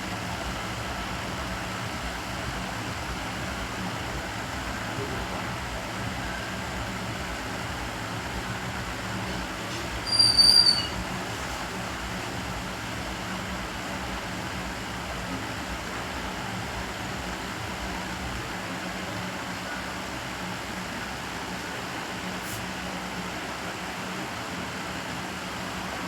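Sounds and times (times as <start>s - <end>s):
room hum: 0.0s - 26.0s
high-pitched whistle-like squeal: 10.0s - 11.0s.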